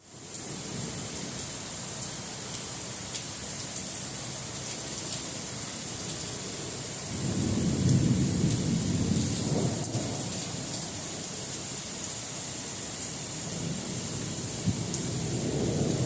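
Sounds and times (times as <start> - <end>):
heavy rain falling: 0.0 - 16.0
low roll of thunder: 7.2 - 11.2, 13.4 - 16.0.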